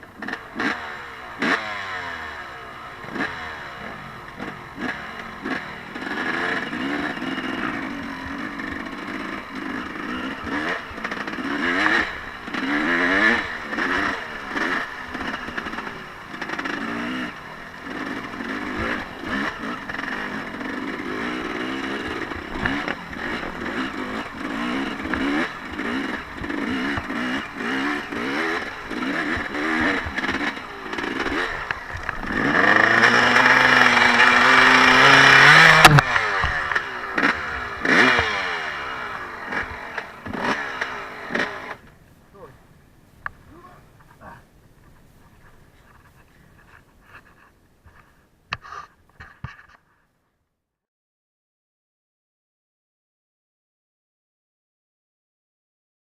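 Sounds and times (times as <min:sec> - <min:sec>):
off-road vehicle engine revving: 0:00.0 - 0:42.6.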